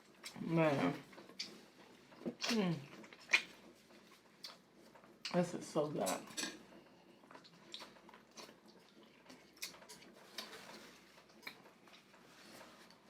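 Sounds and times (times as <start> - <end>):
person chewing: 1.0 - 5.4, 7.1 - 13.0
wet mouth smacks: 3.2 - 3.5.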